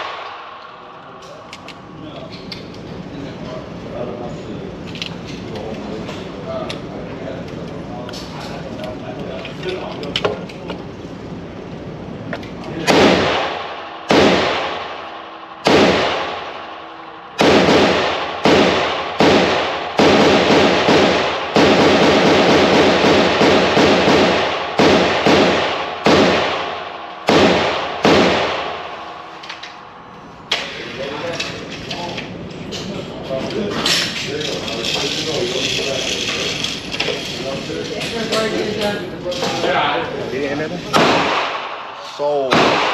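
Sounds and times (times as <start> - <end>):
echoing gunshots: 0.0 - 0.9, 12.8 - 29.9, 40.9 - 42.9.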